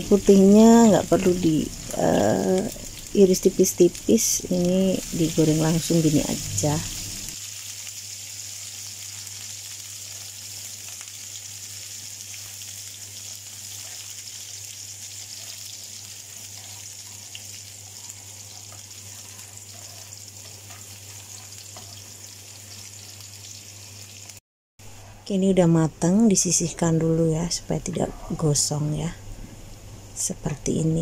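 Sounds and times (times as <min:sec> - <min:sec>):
frying sizzle in hot oil: 0:00.0 - 0:24.4
spatula stirring: 0:13.2 - 0:22.8.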